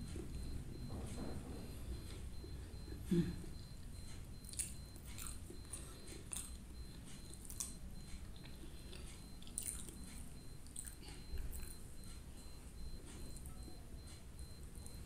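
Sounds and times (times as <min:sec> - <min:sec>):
chewing sticky rice: 0:01.5 - 0:15.0
low throat sound: 0:02.9 - 0:03.6.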